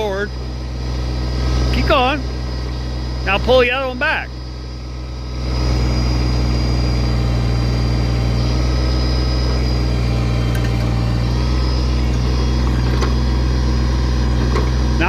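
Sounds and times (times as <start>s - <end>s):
hydraulic whine: 0.0s - 15.0s
tractor diesel engine under load: 0.0s - 15.0s.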